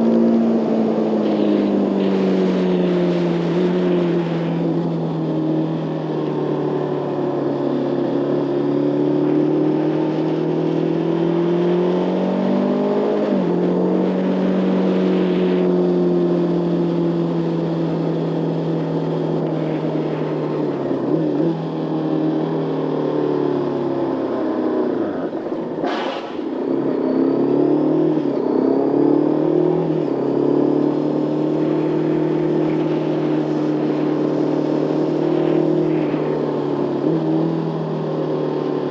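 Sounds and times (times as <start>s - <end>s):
motorcycle engine running: 13.0s - 38.9s
brief sharp noise: 25.8s - 26.6s.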